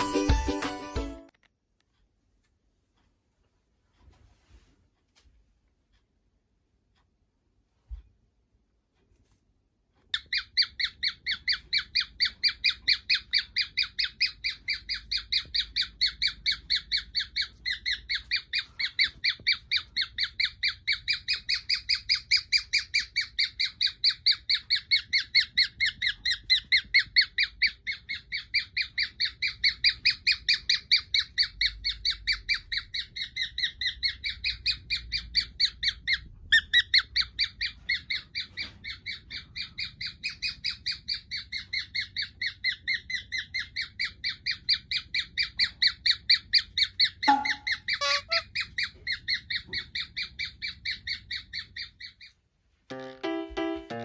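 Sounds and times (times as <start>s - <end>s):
cockatiel squawking calls: 10.1s - 52.3s.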